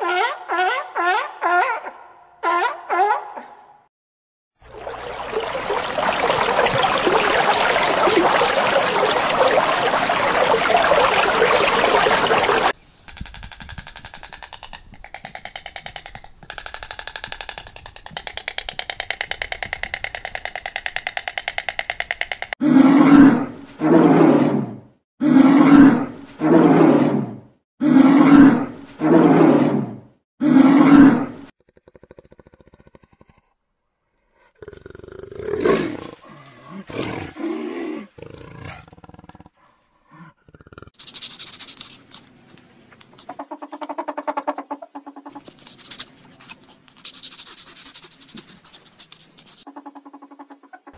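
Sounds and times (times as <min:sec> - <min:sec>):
stork clattering its bill: 0:13.0 - 0:22.6, 0:45.3 - 0:50.9
jaguar roaring: 0:34.6 - 0:41.0.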